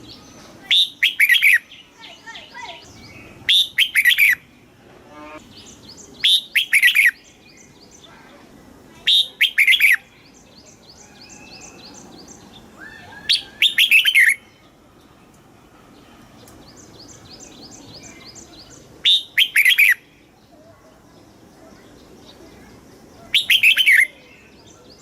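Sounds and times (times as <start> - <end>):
bulbul warbling song: 0.7 - 4.5, 5.1 - 7.3, 12.8 - 14.6.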